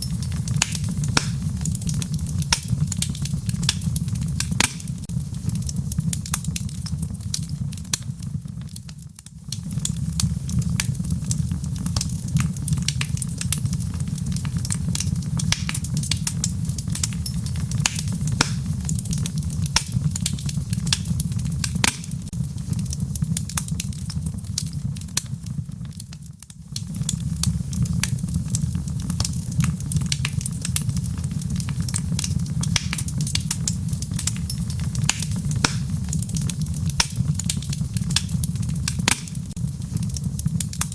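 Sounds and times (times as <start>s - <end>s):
fire crackling pops and snaps: 0.0s - 40.9s
low fire rumble: 0.0s - 40.9s.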